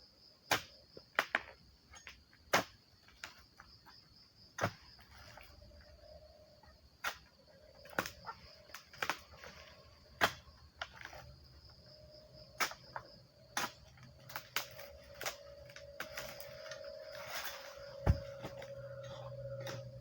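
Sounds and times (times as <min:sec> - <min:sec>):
insect drone: 0:00.0 - 0:20.0
heavy thud: 0:18.0 - 0:18.7.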